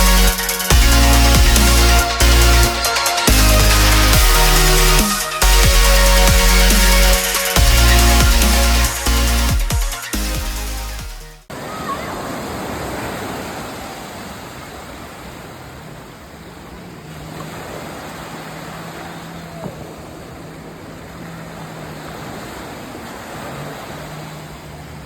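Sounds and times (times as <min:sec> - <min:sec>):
surf rushing: 0:11.5 - 0:25.0
wind: 0:11.5 - 0:25.0.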